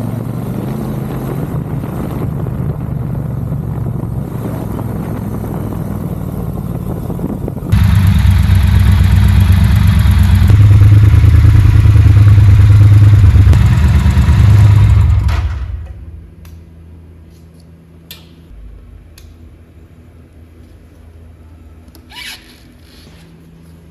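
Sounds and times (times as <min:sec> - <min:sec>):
motorcycle engine running: 0:00.0 - 0:16.3.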